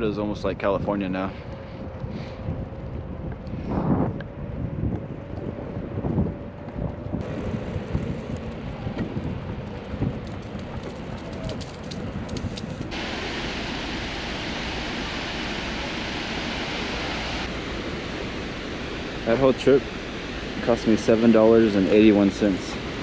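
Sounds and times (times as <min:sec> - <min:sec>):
wind buffeting microphone: 0:00.0 - 0:23.0
waterfall rushing: 0:12.9 - 0:23.0.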